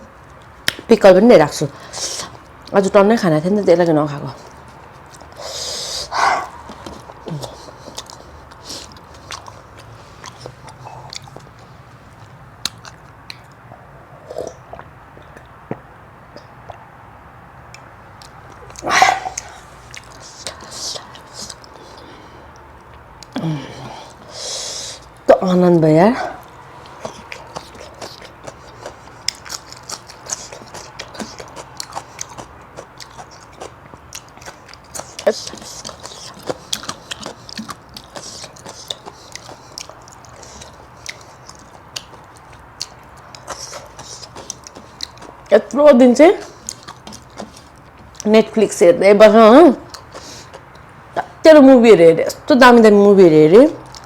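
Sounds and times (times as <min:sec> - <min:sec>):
person chewing food: 0:04.4 - 0:16.9, 0:17.7 - 0:25.3, 0:26.4 - 0:45.5, 0:46.4 - 0:48.3, 0:49.8 - 0:51.0
wet mouth clicks and smacks: 0:06.6 - 0:11.6, 0:12.2 - 0:13.6, 0:14.4 - 0:16.9, 0:17.7 - 0:23.4, 0:26.4 - 0:45.5.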